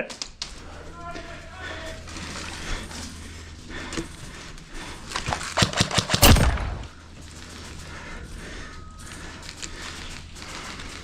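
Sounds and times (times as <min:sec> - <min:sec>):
airsoft rifle rapid shots: 0:05.2 - 0:07.0.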